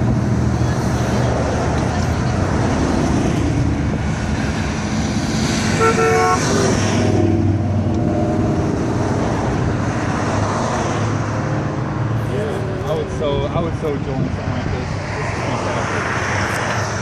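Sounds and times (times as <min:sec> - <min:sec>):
cars driving slowly past: 0:00.0 - 0:17.0
car horn toot: 0:05.7 - 0:06.8.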